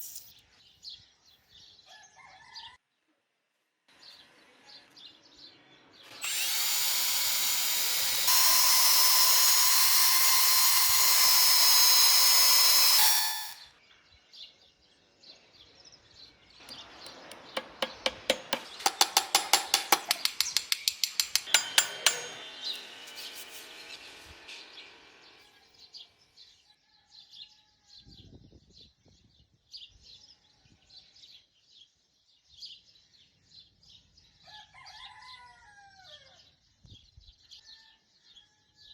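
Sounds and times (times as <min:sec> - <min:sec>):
power tool running: 0:06.1 - 0:13.6, 0:16.7 - 0:25.6
sharp taps: 0:16.7 - 0:22.4.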